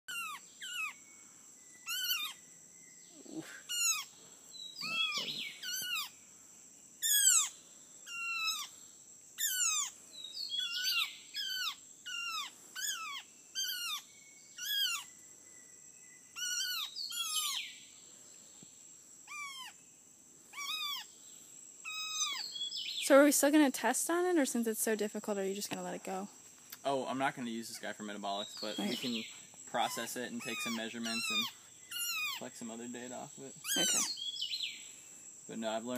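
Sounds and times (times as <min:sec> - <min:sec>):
bird harsh distress calls: 0:00.1 - 0:01.1, 0:01.8 - 0:02.4, 0:03.1 - 0:06.2, 0:07.0 - 0:08.8, 0:09.4 - 0:15.2, 0:16.3 - 0:17.8, 0:19.2 - 0:19.8, 0:20.5 - 0:21.2, 0:21.8 - 0:23.1, 0:27.8 - 0:32.6, 0:33.6 - 0:34.8.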